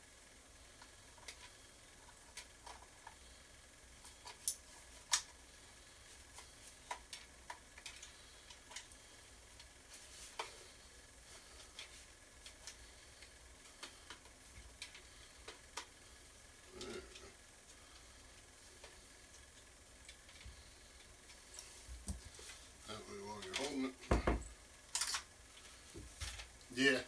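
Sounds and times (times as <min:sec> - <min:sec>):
soft rustle: 0:04.0 - 0:22.8
plastic parts clicking and tapping: 0:06.4 - 0:09.0.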